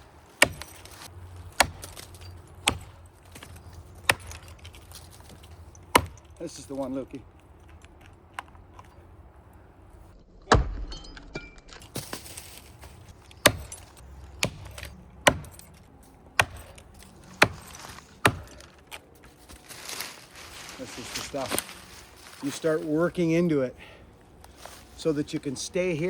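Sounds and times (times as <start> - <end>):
axe chopping tree trunk: 0.3 - 6.7, 11.9 - 15.8, 16.4 - 18.8.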